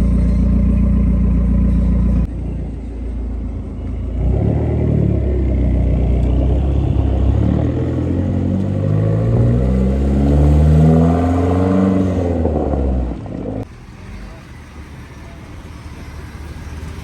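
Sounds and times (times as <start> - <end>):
car engine revving: 4.0 - 17.0.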